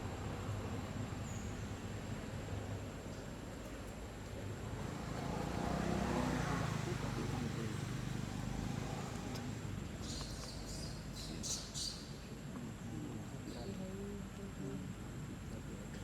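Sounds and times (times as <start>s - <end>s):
vehicle passing rumble: 4.6s - 10.0s.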